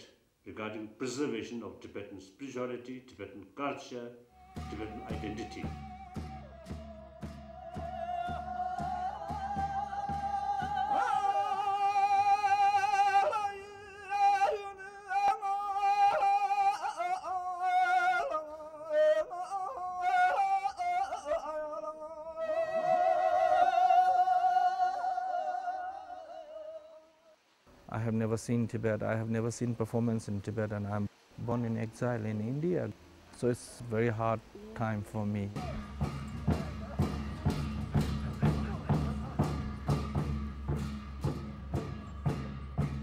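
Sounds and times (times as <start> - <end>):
high voice singing opera: 4.3 - 27.3
steady percussion beat: 4.4 - 11.4, 35.4 - 43.0.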